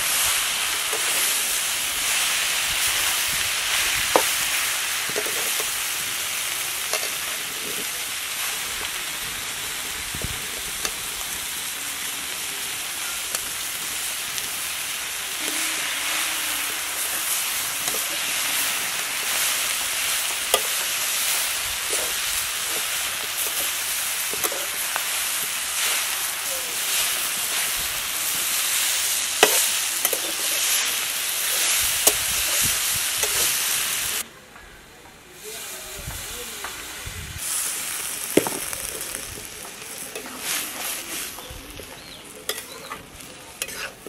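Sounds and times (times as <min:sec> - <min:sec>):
greens sizzling in a pan: 0:00.0 - 0:34.3, 0:35.4 - 0:44.0
metal spatula scraping a pan: 0:15.3 - 0:24.8, 0:43.6 - 0:44.0.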